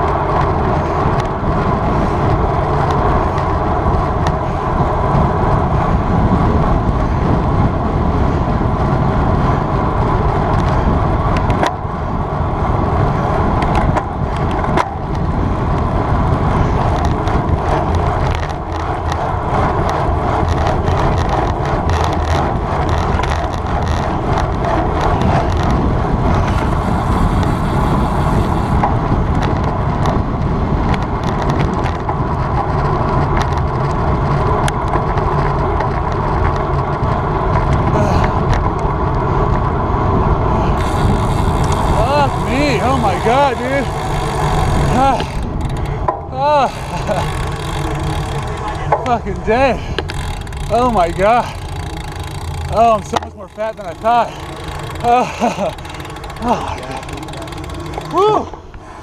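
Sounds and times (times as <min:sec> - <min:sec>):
bike tyres rolling on asphalt: 0:00.0 - 0:59.0
wind rushing over microphone: 0:00.0 - 0:59.0
small clicks: 0:16.8 - 0:30.2, 0:40.7 - 0:49.2, 0:49.9 - 0:58.6.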